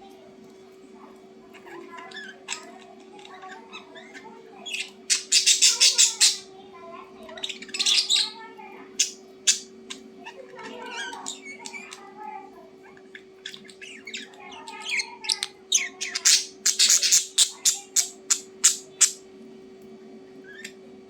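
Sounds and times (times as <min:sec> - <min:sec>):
bird squawking: 0:01.5 - 0:06.5, 0:07.4 - 0:12.0, 0:12.9 - 0:19.2
soft bird chattering: 0:01.5 - 0:12.1, 0:12.8 - 0:19.2, 0:20.4 - 0:20.8.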